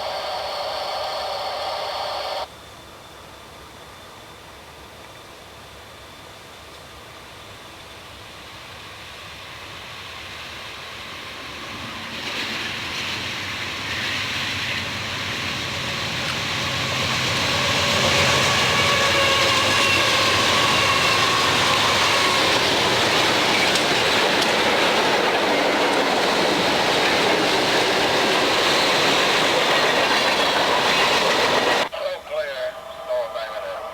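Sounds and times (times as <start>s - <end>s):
freight train rumbling: 7.9s - 33.9s.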